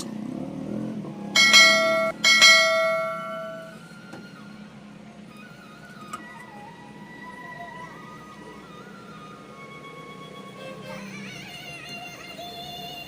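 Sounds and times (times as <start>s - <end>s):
bell-like chimes: 1.4s - 3.8s.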